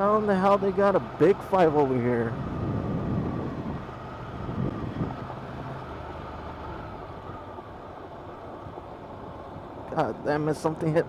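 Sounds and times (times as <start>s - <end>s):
motorcycle engine running: 0.0s - 8.5s
road and wind noise: 0.0s - 11.0s.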